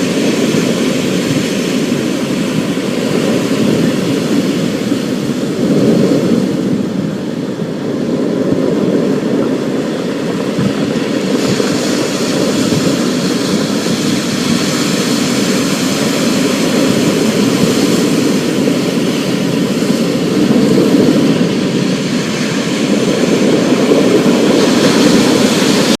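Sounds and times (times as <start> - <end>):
thunder low rumble: 0.0 - 26.0.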